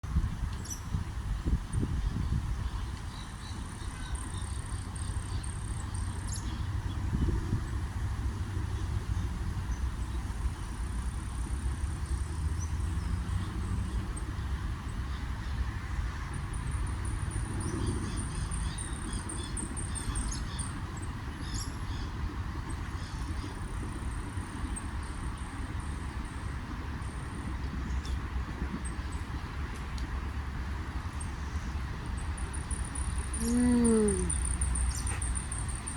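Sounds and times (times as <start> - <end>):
bird calls: 32.9 - 35.6.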